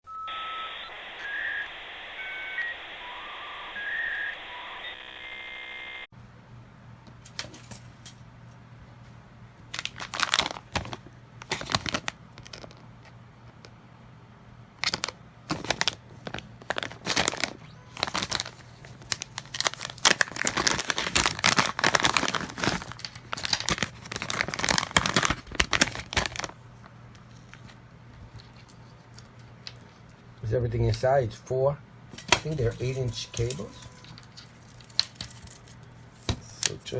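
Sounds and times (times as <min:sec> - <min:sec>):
plastic packaging crinkling and tearing: 0:09.7 - 0:12.8, 0:14.8 - 0:26.6, 0:32.4 - 0:36.8.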